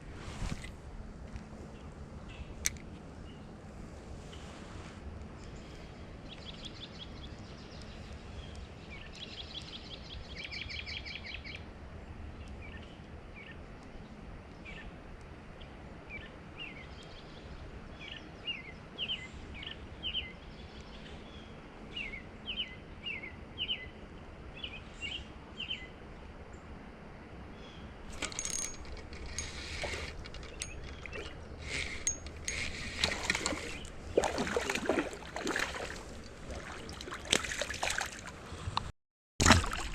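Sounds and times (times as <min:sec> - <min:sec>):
songbirds singing: 0:01.4 - 0:03.6, 0:05.4 - 0:11.7, 0:12.3 - 0:26.8, 0:27.4 - 0:38.9
flowing creek water: 0:28.1 - 0:38.8, 0:39.4 - 0:39.9.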